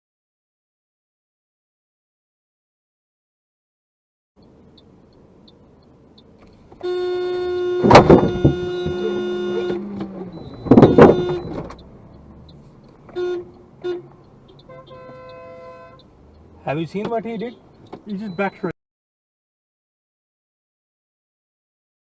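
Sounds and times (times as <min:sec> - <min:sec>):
car horn honking: 0:06.8 - 0:11.9, 0:13.1 - 0:16.2.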